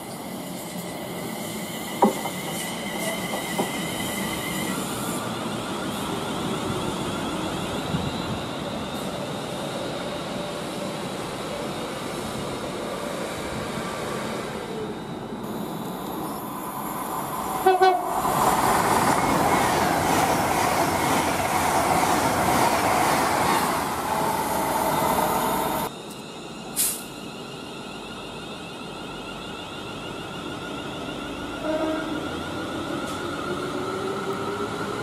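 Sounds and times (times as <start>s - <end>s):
express train passing: 0.0s - 35.0s
train horn toots: 17.6s - 18.2s, 31.6s - 32.2s
brief high hiss: 26.8s - 27.2s.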